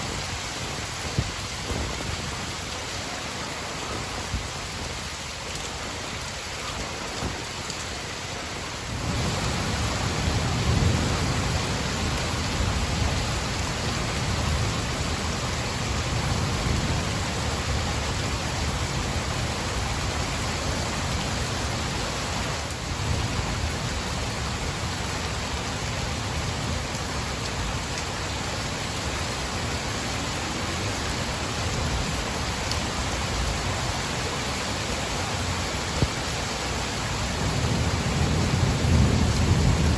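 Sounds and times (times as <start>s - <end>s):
heavy rain: 0.0s - 39.9s
thunder rumbling: 9.0s - 19.4s, 37.4s - 39.9s.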